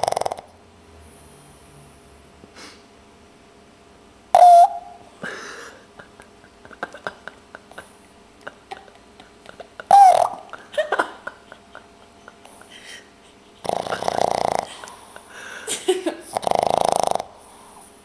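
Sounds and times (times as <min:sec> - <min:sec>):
dog snoring: 0:00.0 - 0:00.6, 0:13.6 - 0:15.2, 0:16.3 - 0:17.9
breathy exhale: 0:02.6 - 0:02.9, 0:14.8 - 0:15.7, 0:17.4 - 0:18.0.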